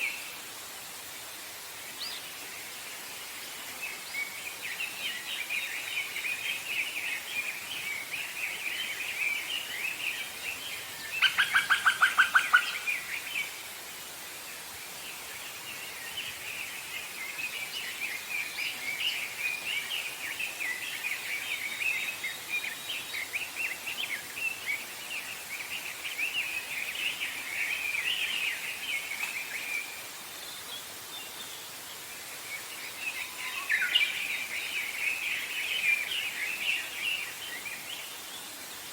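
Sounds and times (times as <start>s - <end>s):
small birds chirping: 1.9s - 13.8s.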